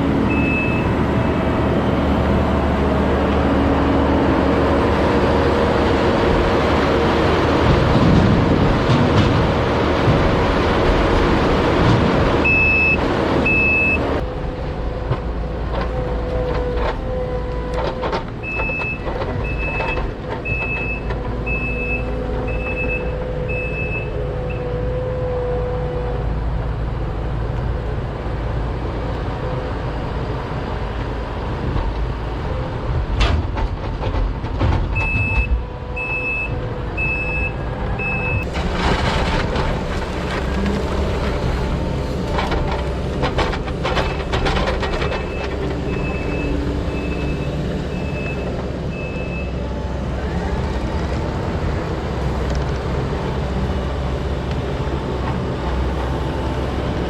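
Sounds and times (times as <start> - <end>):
truck engine running: 0.0 - 17.1, 26.4 - 57.0
backup alarm beeping: 0.3 - 1.1, 12.4 - 14.2.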